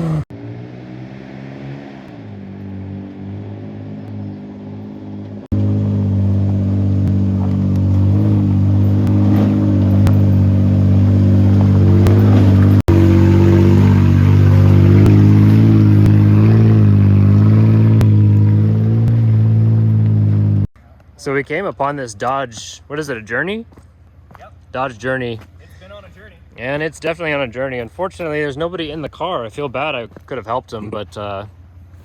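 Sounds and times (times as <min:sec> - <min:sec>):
engine exhaust rumbling: 0:02.0 - 0:32.0.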